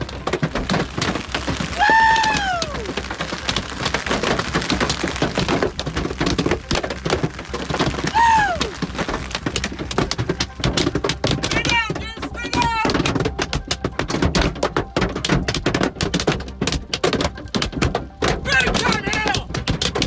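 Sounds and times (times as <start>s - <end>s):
hailstones pelting down: 0.0s - 20.0s
pitched cries sliding downward: 1.7s - 3.1s.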